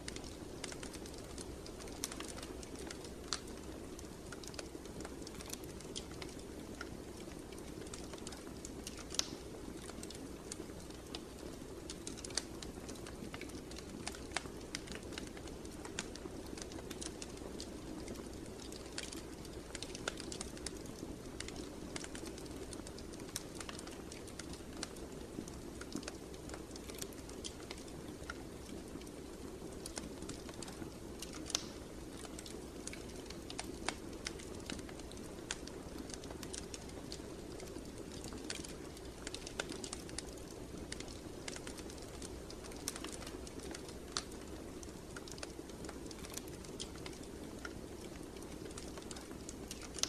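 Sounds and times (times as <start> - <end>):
low rush of flames: 0.0 - 50.0
wood fire crackling: 0.0 - 50.0.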